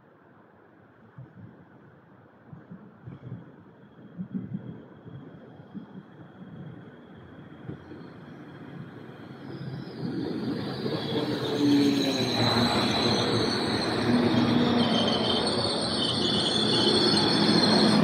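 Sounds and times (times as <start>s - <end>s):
diesel train passing: 6.9s - 18.0s
high-pitched squeal: 8.0s - 18.0s.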